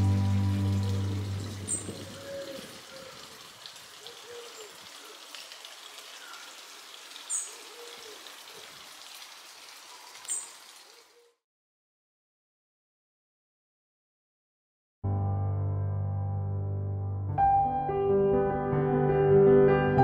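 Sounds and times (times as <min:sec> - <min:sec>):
background music: 0:00.0 - 0:02.0, 0:15.1 - 0:20.0.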